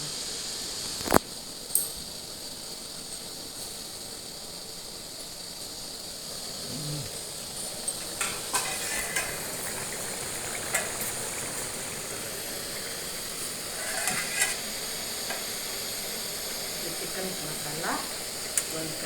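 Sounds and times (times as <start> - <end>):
food sizzling in a pan: 0.0 - 19.0
spatula scraping and knocking pan: 7.5 - 15.6.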